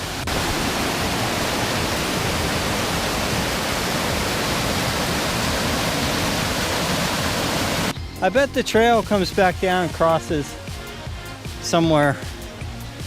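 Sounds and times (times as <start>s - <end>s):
waterfall rushing: 0.0s - 7.9s.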